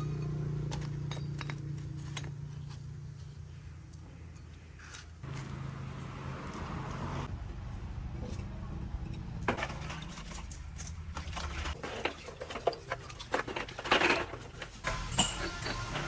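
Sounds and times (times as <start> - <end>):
metal tools clinking: 0.0 - 3.4, 9.0 - 16.0.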